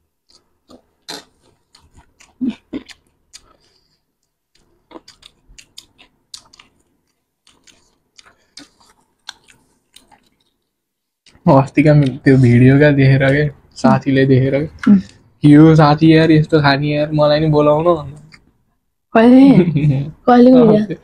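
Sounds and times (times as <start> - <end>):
person chewing crunchy food: 0.2 - 11.4
wet mouth clicks: 0.3 - 10.6.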